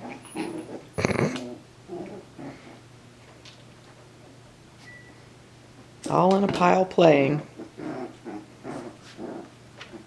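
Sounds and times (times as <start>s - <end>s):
puppies growling softly: 0.0s - 3.4s, 7.4s - 10.0s.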